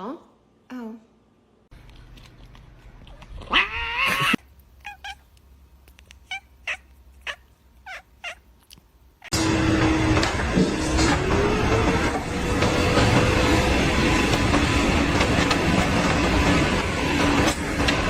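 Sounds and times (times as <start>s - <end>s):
cat meowing: 3.4s - 5.3s, 6.1s - 8.5s.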